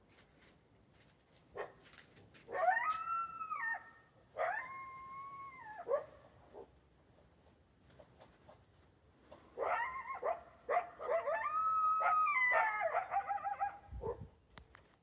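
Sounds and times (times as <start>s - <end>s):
coyotes howling: 2.5s - 6.0s, 9.6s - 13.8s.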